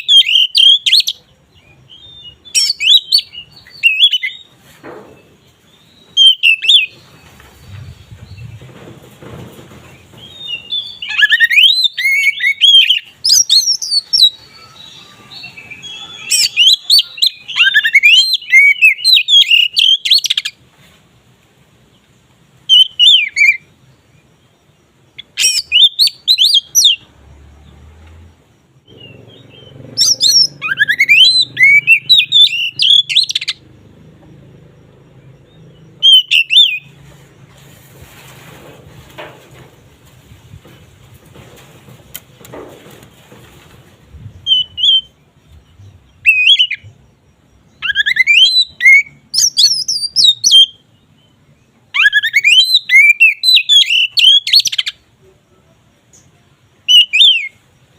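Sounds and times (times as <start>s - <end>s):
magpie-robin singing: 0.0s - 4.5s, 5.8s - 8.6s, 10.2s - 20.6s, 22.7s - 23.7s, 25.2s - 27.1s, 28.9s - 33.7s, 34.8s - 37.0s, 44.1s - 47.0s, 47.6s - 55.0s, 56.8s - 57.6s.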